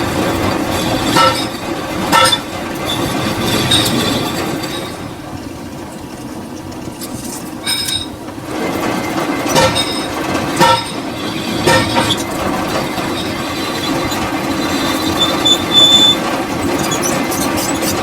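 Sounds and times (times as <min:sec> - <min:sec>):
metal lathe humming: 0:00.0 - 0:05.3, 0:07.7 - 0:18.0
high metallic squeal: 0:00.1 - 0:05.1, 0:09.4 - 0:18.0
sharp metallic knocks: 0:00.7 - 0:02.8, 0:09.5 - 0:12.8.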